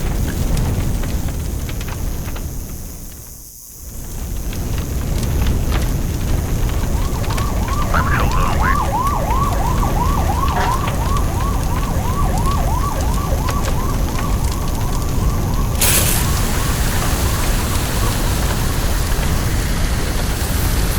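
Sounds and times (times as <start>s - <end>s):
low rumble of fire: 0.0s - 20.9s
fire engine siren yelping: 5.7s - 20.3s
loud hiss: 15.8s - 20.9s.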